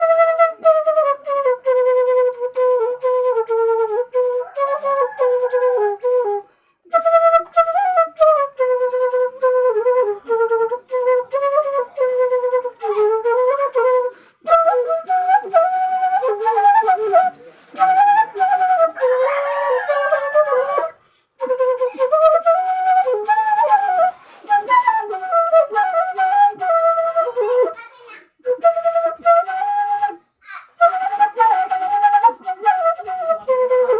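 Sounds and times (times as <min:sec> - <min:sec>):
flute melody: 0:00.0 - 0:33.9.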